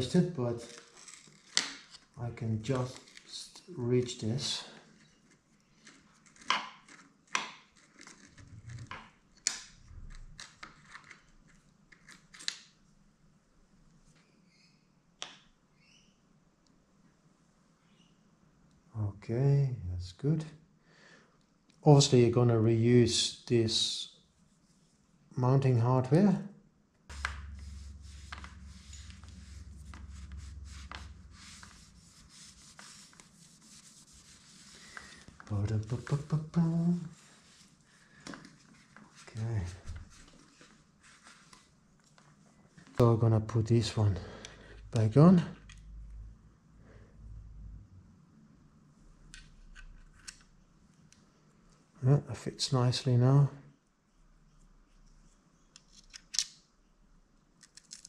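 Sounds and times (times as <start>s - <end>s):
metallic clicks and scrapes of tools: 0.6s - 2.1s
low hum: 27.1s - 37.5s.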